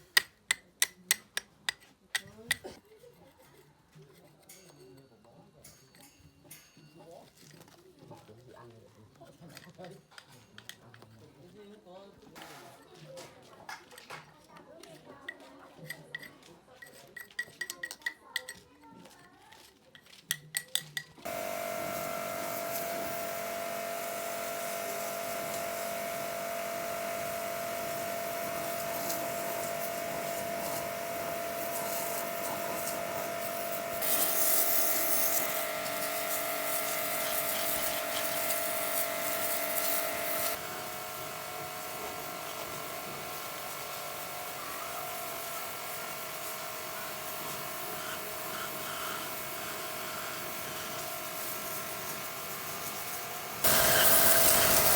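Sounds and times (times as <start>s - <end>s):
electric power tool whining: 21.2s - 54.9s.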